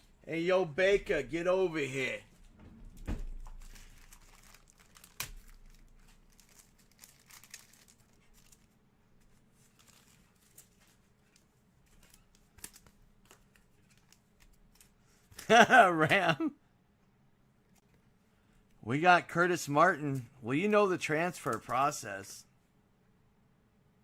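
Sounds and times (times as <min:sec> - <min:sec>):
plastic packaging crinkling: 0:03.3 - 0:15.0.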